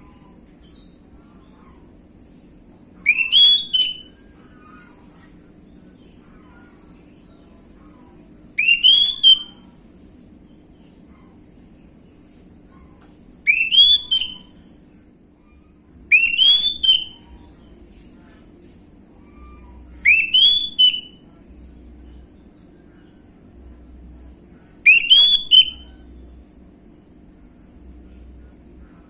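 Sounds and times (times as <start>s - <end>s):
thrush whistling song: 3.1s - 4.1s, 8.5s - 9.6s, 13.5s - 14.5s, 16.1s - 17.2s, 20.0s - 21.2s, 24.1s - 26.0s.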